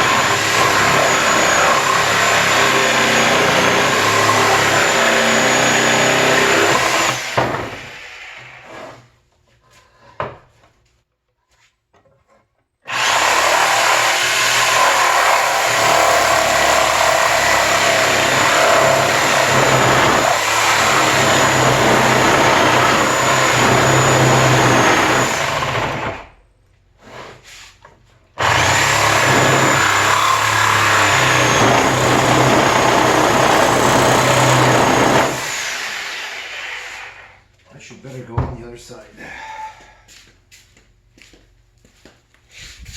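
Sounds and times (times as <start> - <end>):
reciprocating saw cutting wood: 0.0 - 9.1, 12.9 - 26.2, 28.4 - 37.4.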